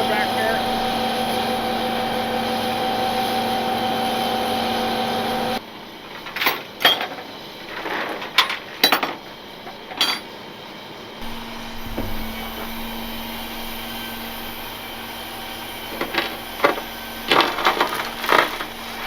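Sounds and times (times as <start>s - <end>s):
truck engine humming: 0.0s - 6.2s, 11.2s - 19.0s
sharp metallic clanks: 8.4s - 10.3s
low hum: 11.2s - 19.0s.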